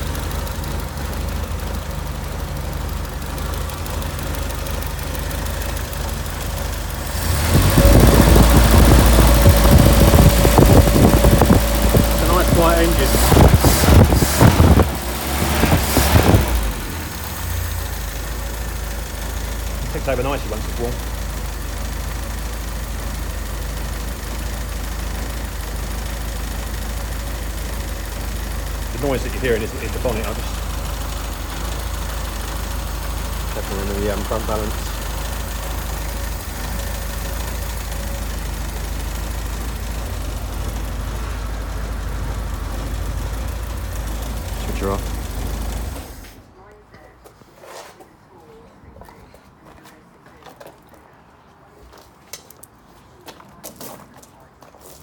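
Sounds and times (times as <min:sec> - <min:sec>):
rattling clatter: 0:00.0 - 0:17.6
car engine idling: 0:00.0 - 0:46.7.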